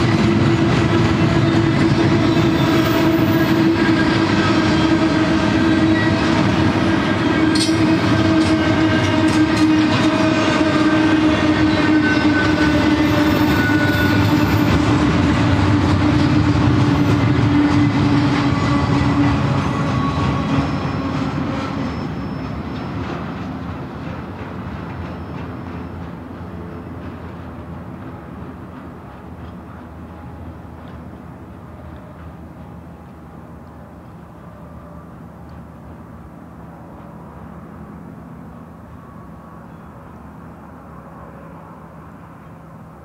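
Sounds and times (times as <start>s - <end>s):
freight train wheels rumbling: 0.0s - 43.0s.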